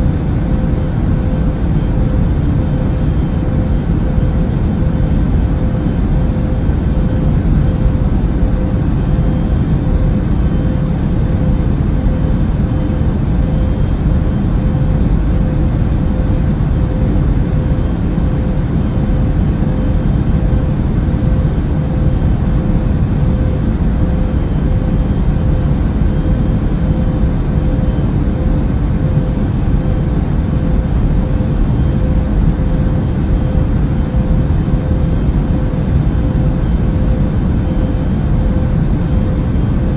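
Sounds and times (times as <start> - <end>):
aircraft cabin low rumble: 0.0 - 39.9
constant hum: 0.0 - 39.9.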